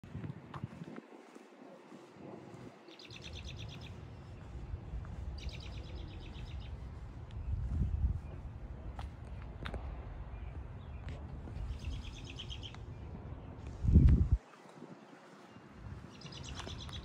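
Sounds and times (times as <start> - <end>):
steady low rumble: 0.0 - 14.4
songbird trills: 2.8 - 7.0, 11.6 - 13.4, 14.5 - 17.0.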